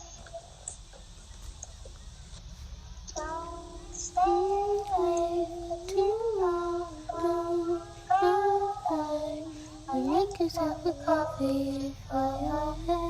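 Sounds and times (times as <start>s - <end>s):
child singing: 3.2s - 13.0s.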